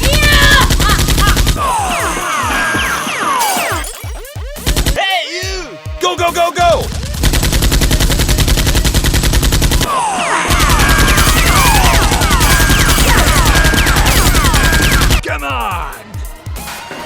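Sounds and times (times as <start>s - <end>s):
machine-gun fire: 7.1s - 9.9s, 10.5s - 15.2s.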